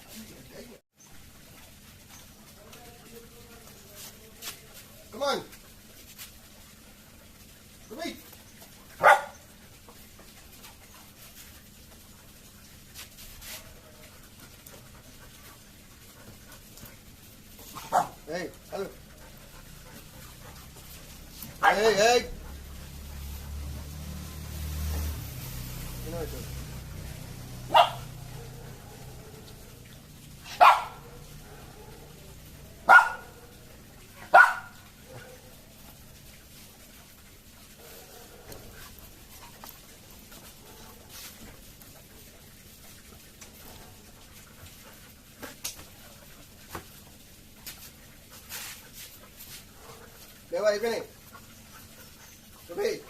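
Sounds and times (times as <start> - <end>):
puppy barking: 9.0 - 9.5, 17.7 - 18.9, 21.2 - 24.3, 27.6 - 29.7, 30.3 - 35.6, 37.8 - 39.0.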